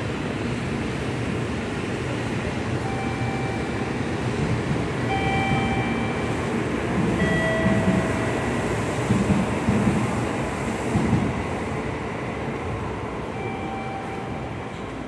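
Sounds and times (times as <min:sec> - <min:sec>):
train rumble: 0:00.0 - 0:15.0
short high tones: 0:13.4 - 0:14.8.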